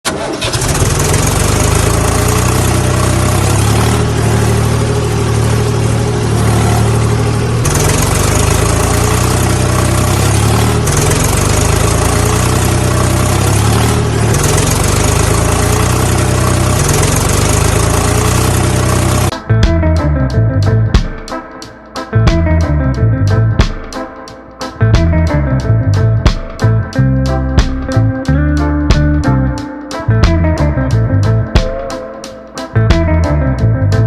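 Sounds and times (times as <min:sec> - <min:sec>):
engine idling: 0:00.1 - 0:20.0.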